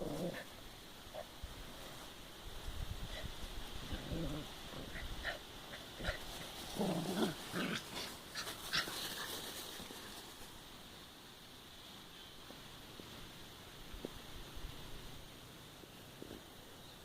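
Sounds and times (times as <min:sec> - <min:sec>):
dogs playing and vocalizing: 0:03.1 - 0:10.5.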